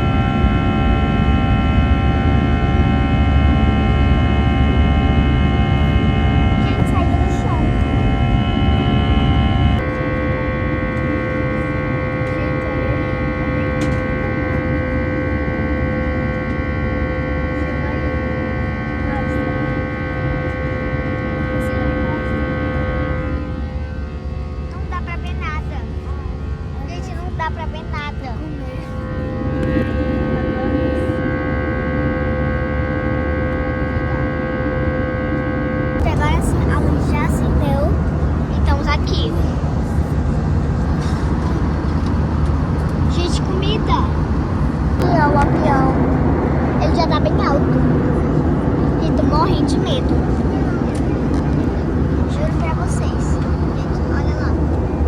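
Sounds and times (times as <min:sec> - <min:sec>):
airliner engines rumbling and whining: 0:00.0 - 0:55.0.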